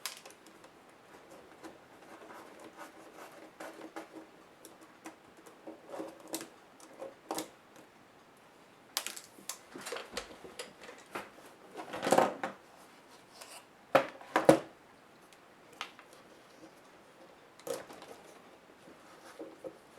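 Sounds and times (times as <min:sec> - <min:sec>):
scrape: 0:12.8 - 0:13.7.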